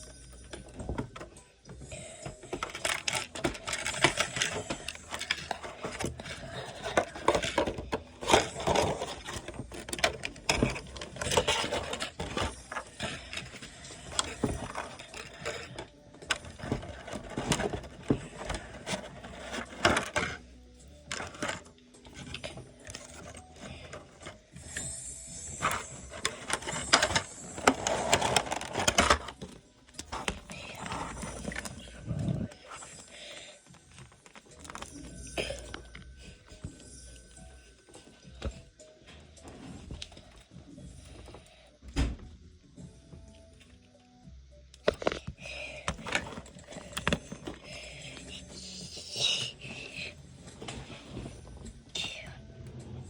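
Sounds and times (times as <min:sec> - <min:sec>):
plastic clicks and scrapes: 0:02.2 - 0:33.1, 0:33.7 - 0:36.9, 0:44.8 - 0:49.8.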